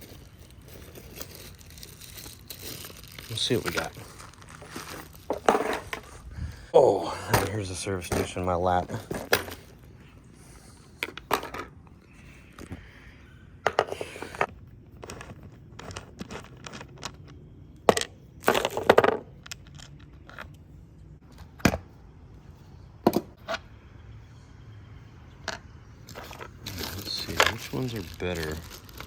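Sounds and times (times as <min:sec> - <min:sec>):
crinkly packaging rustling: 0:00.0 - 0:06.4, 0:26.1 - 0:29.0
small hard parts clicking: 0:13.6 - 0:20.6.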